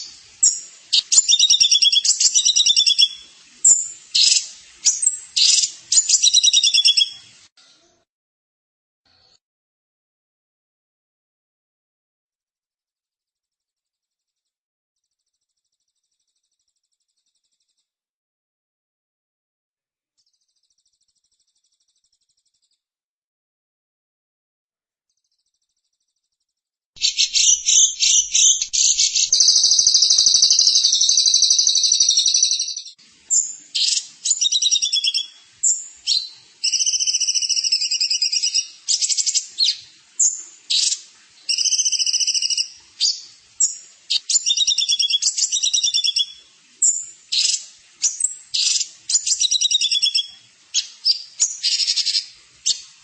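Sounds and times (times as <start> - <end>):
songbird singing trills: 0.0 - 7.2, 27.0 - 52.9.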